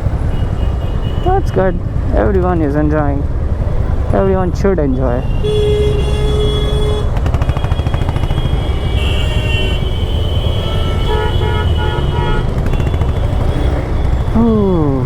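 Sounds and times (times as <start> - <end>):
traffic engine rumble: 0.0 - 15.0
car horns honking: 0.2 - 1.7, 4.9 - 14.4.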